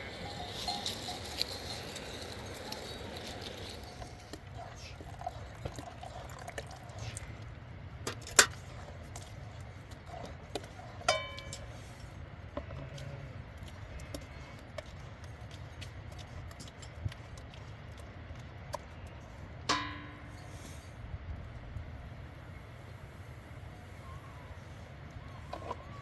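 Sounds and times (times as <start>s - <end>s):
ringing clink: 0.0s - 4.0s.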